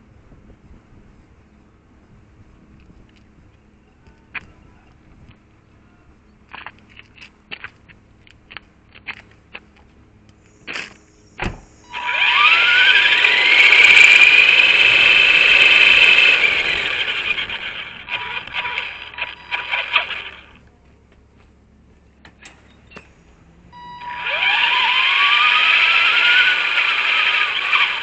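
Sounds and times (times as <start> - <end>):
rc car electric motor whining: 11.8 - 20.6, 23.8 - 28.0.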